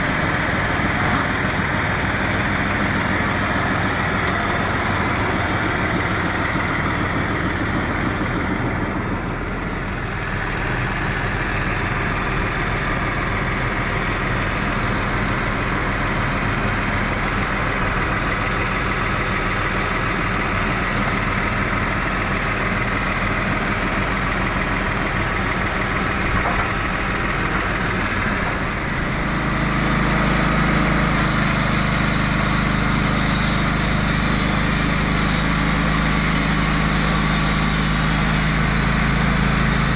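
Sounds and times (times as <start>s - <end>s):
heavy machine engine running: 0.0s - 39.9s
high rushing hiss: 28.3s - 39.9s.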